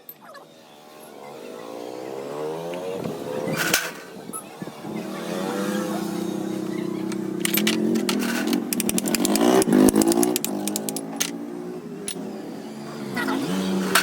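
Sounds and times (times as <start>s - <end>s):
rapid sharp clicks and knocks: 7.1s - 11.4s.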